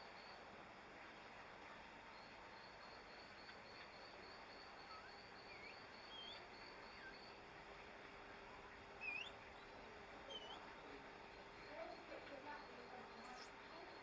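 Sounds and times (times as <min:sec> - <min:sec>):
birds chirping: 0:09.0 - 0:09.7, 0:10.3 - 0:12.0.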